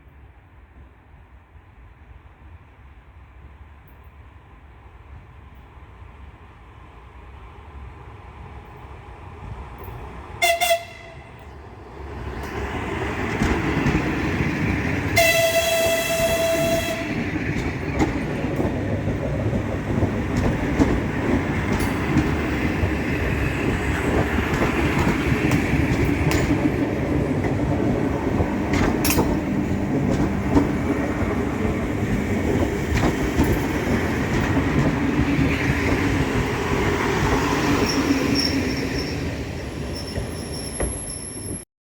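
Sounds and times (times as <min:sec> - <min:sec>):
train wheels rumbling on rails: 0:00.5 - 0:41.6
rail joint clicks: 0:08.4 - 0:41.6
train horn blast: 0:10.4 - 0:11.5, 0:15.1 - 0:17.3.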